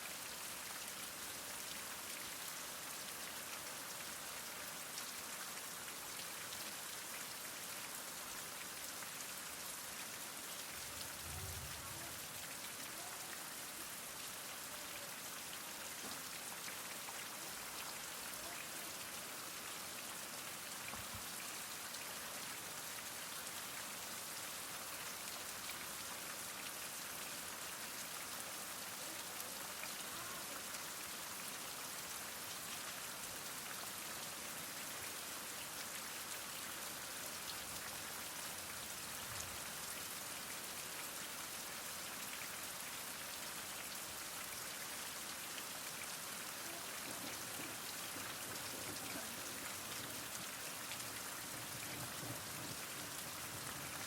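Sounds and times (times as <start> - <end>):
heavy rain falling: 10.6 - 21.5, 45.0 - 54.0.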